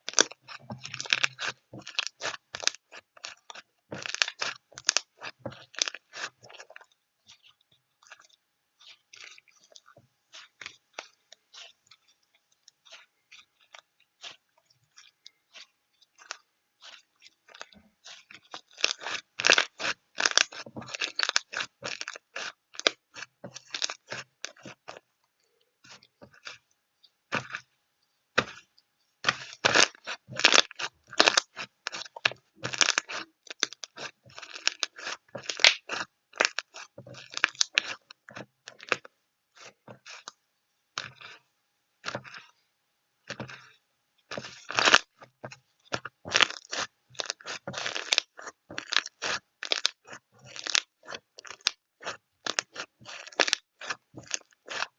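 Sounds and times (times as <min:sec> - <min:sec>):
close-up crackling and crunching: 0:00.0 - 0:42.6, 0:43.2 - 0:54.9.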